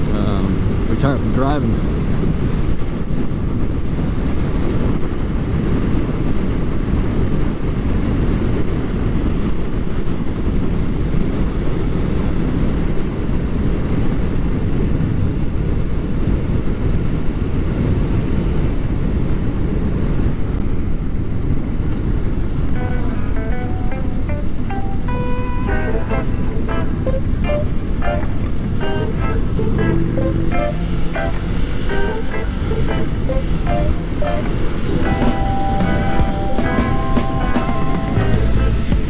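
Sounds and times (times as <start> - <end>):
wind rushing on microphone: 0.0 - 39.0
motorcycle engine cruising: 22.5 - 39.0.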